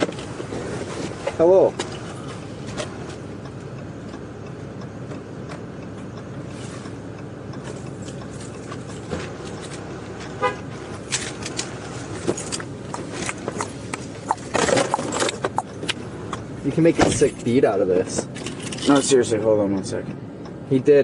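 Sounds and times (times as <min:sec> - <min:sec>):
vehicle interior rumble: 0:00.0 - 0:21.0
short horn toot: 0:10.4 - 0:10.7.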